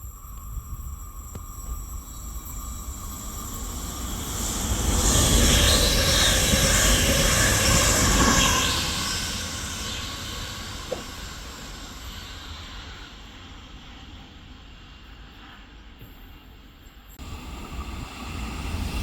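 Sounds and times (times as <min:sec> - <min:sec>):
train passing: 0:00.0 - 0:19.0.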